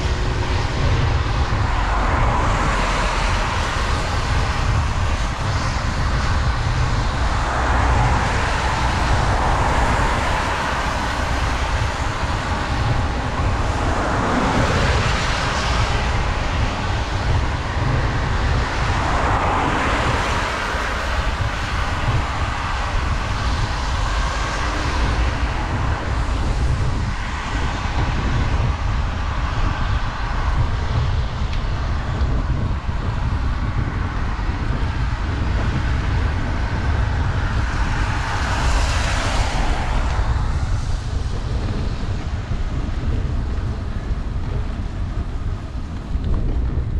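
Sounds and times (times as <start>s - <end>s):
vehicles swishing past: 0.0s - 46.6s
wind rumble on microphone: 0.0s - 46.9s
hiss of wet road: 35.0s - 42.1s.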